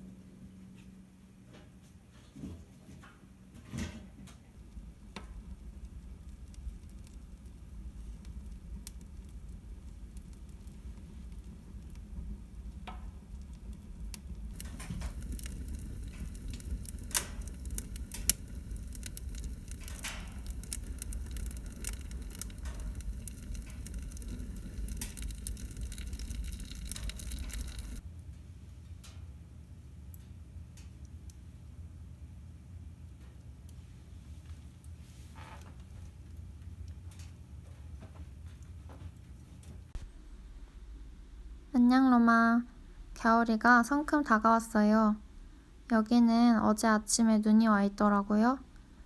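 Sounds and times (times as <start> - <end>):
low steady fire rumble: 0.0 - 49.0
firewood crackling and popping: 3.5 - 40.0.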